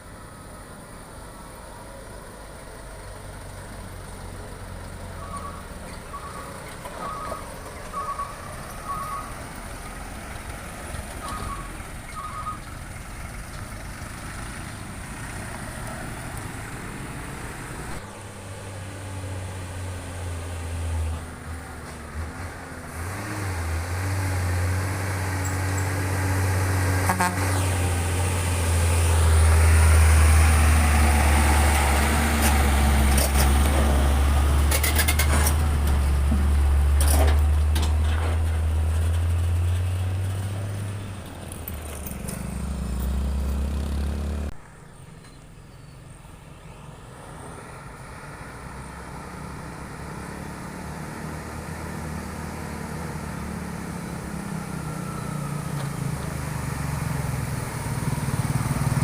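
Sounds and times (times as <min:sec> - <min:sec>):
heavy truck engine drone: 0:00.0 - 0:59.0.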